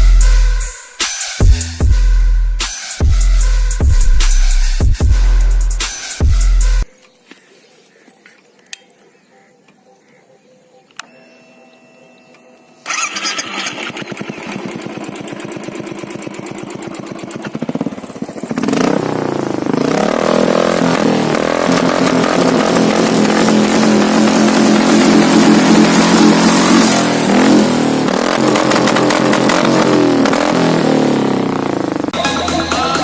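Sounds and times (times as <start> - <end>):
motorcycle engine starting and idling: 12.8 - 32.2.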